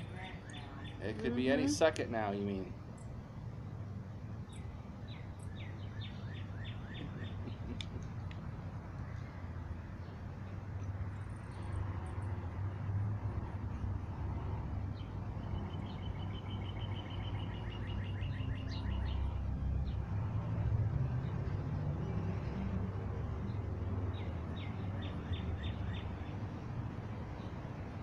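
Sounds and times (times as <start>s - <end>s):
songbird trilling chirps: 0.0s - 1.5s, 4.5s - 7.8s, 15.0s - 19.4s.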